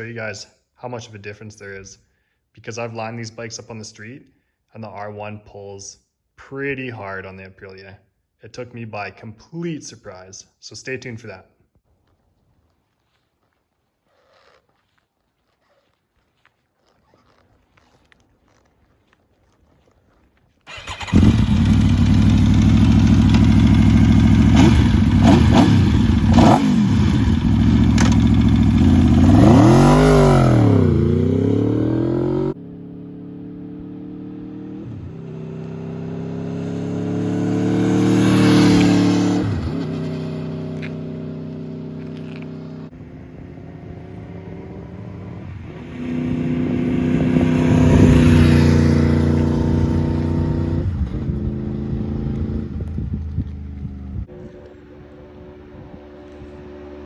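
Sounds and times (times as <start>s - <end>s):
loud sport bike engine revving: 20.9s - 40.9s, 44.0s - 52.7s.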